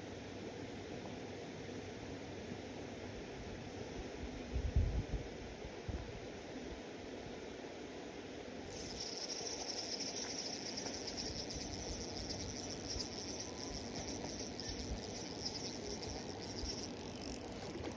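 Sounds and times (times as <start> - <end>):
insects trilling: 8.7 - 17.9.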